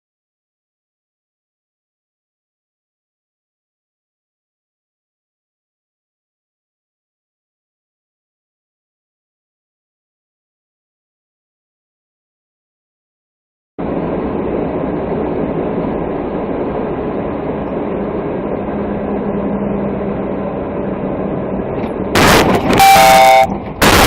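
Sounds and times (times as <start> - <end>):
car road and engine noise: 13.8 - 24.0
loud car horn blaring: 22.2 - 24.0.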